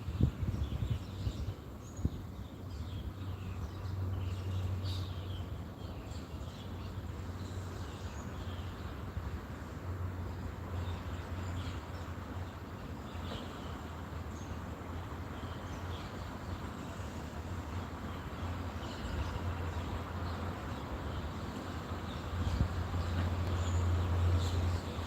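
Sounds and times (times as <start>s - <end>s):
small birds chirping: 10.3s - 25.0s.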